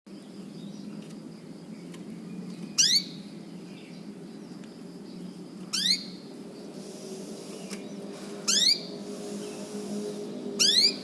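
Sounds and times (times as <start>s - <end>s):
canary upward-sweeping calls: 2.8s - 3.2s, 5.7s - 11.0s.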